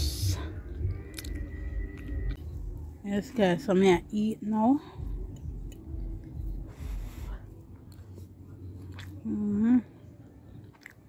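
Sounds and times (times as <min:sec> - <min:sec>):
person chewing food: 0:00.5 - 0:02.9, 0:05.0 - 0:11.0.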